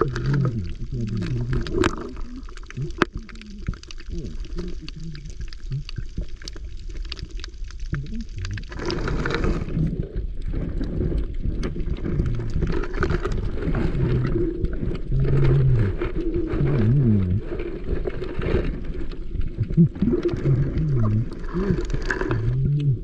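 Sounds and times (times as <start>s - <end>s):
underwater sloshing and bubbling: 0.0s - 23.0s.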